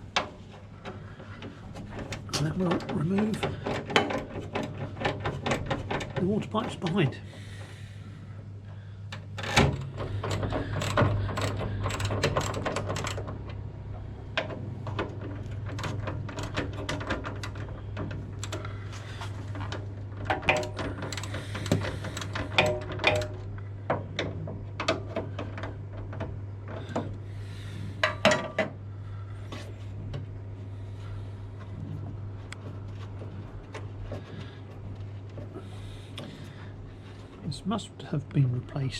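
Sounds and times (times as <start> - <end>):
steady low hum: 0.0 - 38.9
hand tools clicking on metal: 20.3 - 23.4.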